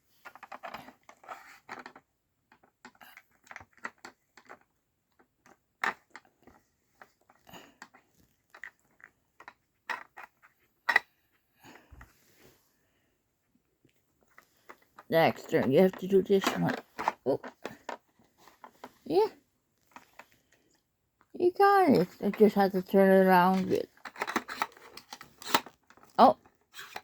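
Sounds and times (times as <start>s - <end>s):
plastic puzzle clicks and knocks: 0.1s - 11.2s, 14.3s - 19.0s, 23.2s - 27.0s.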